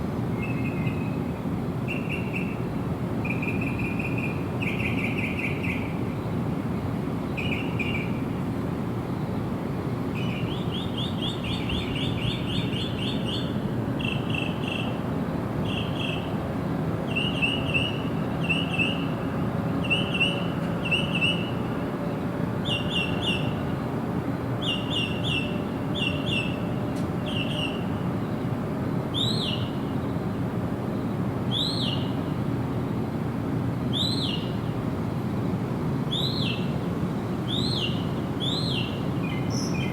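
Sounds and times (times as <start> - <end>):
bird chirping: 37.5 - 39.9.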